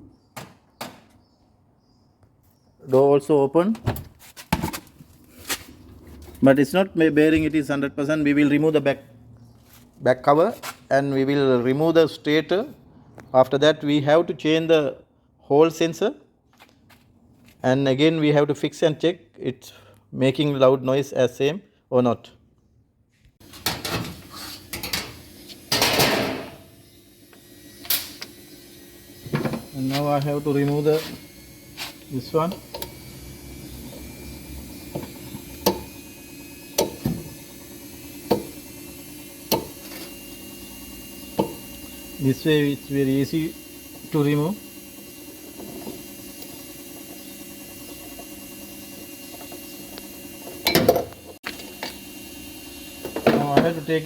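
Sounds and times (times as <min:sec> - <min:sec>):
tools and metal parts clattering: 0:23.4 - 0:26.6.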